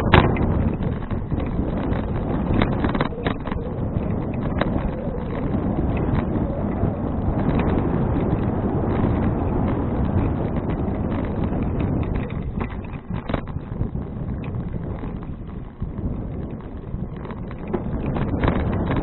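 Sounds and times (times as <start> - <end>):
light clicks and rattles: 0.0 - 19.0
wind buffeting microphone: 0.0 - 19.0.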